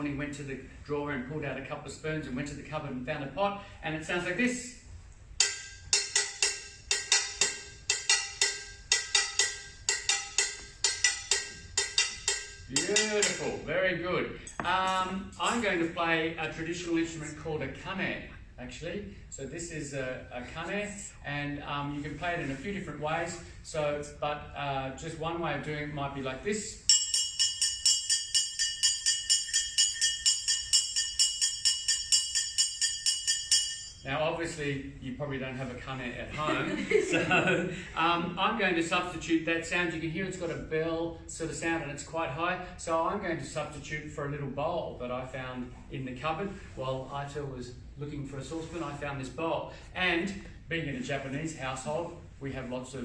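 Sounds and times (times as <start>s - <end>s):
spoons striking metal pot: 5.4s - 13.6s, 26.9s - 34.0s.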